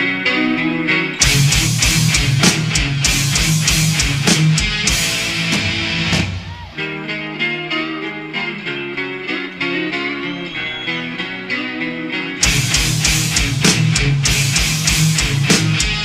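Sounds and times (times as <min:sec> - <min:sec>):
heavy metal band playing: 0:00.0 - 0:07.8, 0:12.4 - 0:16.0
lone electric guitar melody: 0:00.0 - 0:16.0
drums: 0:01.2 - 0:07.2, 0:12.4 - 0:16.0.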